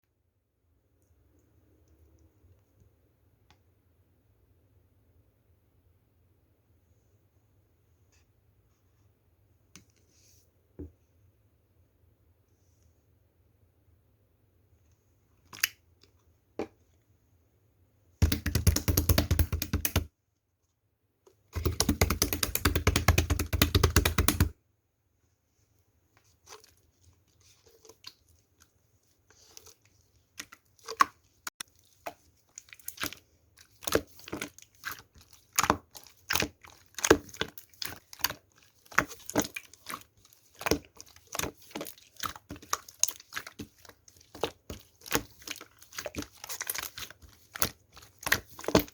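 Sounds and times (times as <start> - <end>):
slime clicking: 18.2 - 20.1, 21.6 - 24.5
slime popping and crackling: 18.2 - 20.1, 21.6 - 24.5, 32.0 - 48.9.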